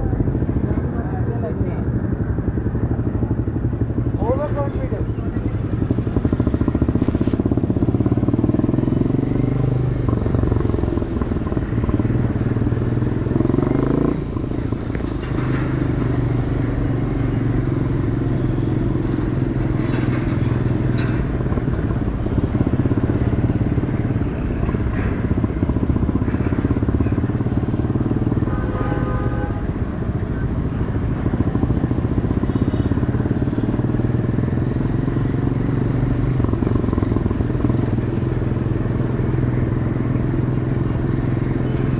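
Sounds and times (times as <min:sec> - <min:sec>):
motorcycle engine revving: 0:01.8 - 0:41.9
vehicle horn beeping: 0:28.4 - 0:29.8.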